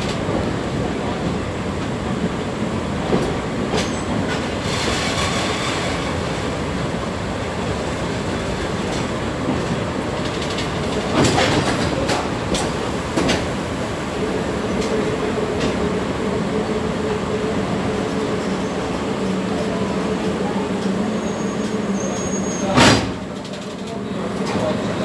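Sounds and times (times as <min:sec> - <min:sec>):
train wheels rumbling on rails: 0:00.0 - 0:25.0
clicks of wheels on track: 0:22.7 - 0:25.0.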